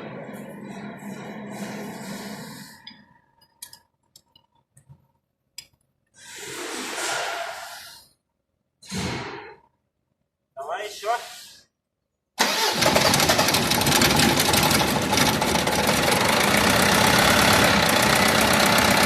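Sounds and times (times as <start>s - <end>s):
loud hissing bursts: 10.9s - 11.7s
diesel engine starter cranking: 12.4s - 19.0s.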